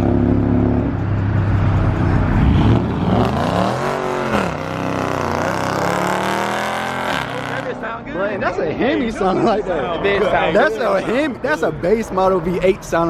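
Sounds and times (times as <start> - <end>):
car engine accelerating hard: 0.0 - 8.0.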